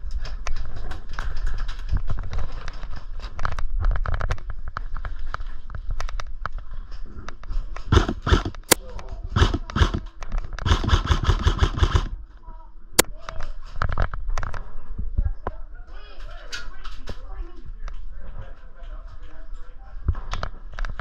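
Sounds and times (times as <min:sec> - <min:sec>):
airsoft gun shots: 0:07.9 - 0:08.8, 0:09.4 - 0:12.2.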